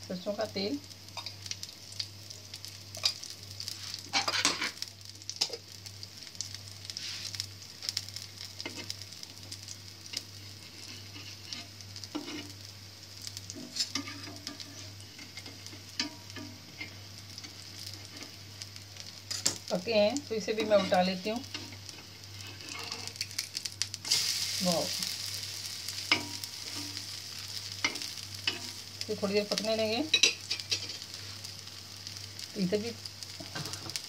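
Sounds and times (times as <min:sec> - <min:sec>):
patties sizzling in oil: 0:00.0 - 0:34.0
metal spatula scraping griddle: 0:04.1 - 0:04.8, 0:10.2 - 0:12.6, 0:13.6 - 0:18.4, 0:20.5 - 0:23.3.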